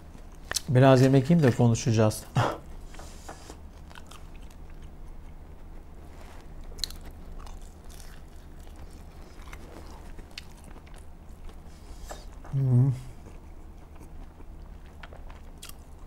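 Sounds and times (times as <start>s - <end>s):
person chewing food: 2.7s - 16.0s.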